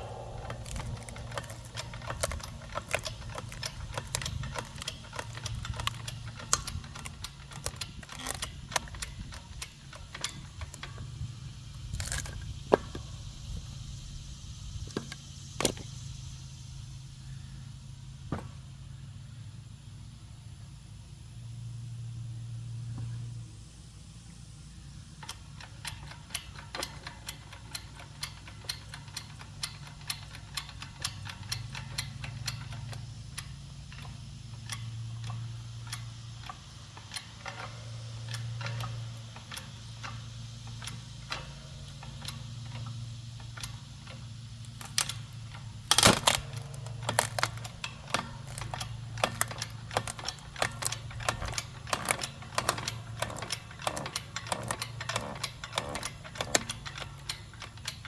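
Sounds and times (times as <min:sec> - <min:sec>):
log cracking: 0:00.0 - 0:04.9, 0:45.9 - 0:56.6
hydraulic pump clicking: 0:00.0 - 0:13.6, 0:14.7 - 0:16.0, 0:25.2 - 0:58.0.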